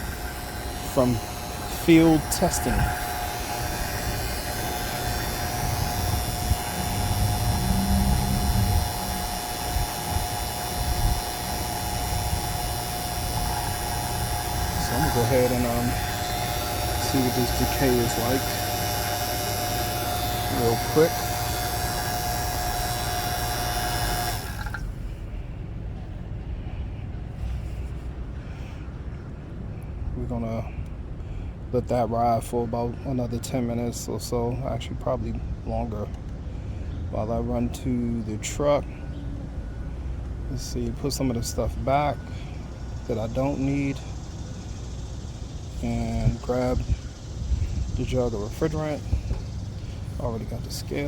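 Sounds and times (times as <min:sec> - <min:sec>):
vacuum pump humming: 0:00.0 - 0:25.2, 0:40.2 - 0:51.0
low steady rumble: 0:00.0 - 0:32.6.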